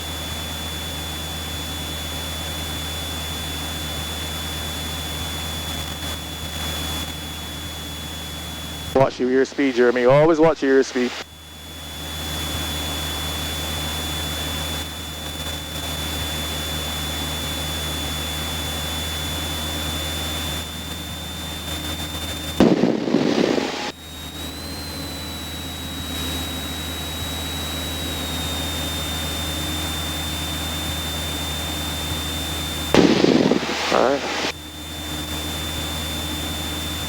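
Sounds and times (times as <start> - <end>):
aircraft piston engine droning: 0.0 - 37.0
thin high whine: 7.6 - 13.0, 19.9 - 37.0
loud burst of sound: 22.6 - 24.0, 33.0 - 34.6.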